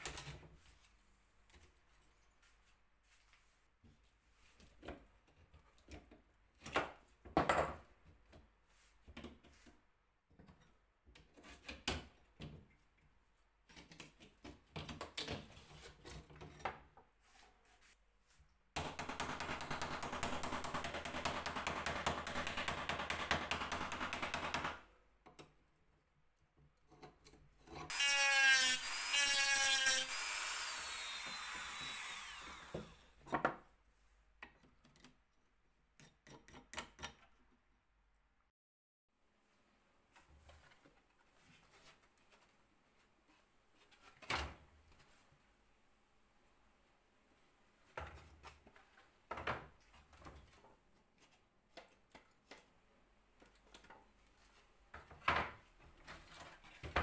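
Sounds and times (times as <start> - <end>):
power drill running: 27.9 - 33.1.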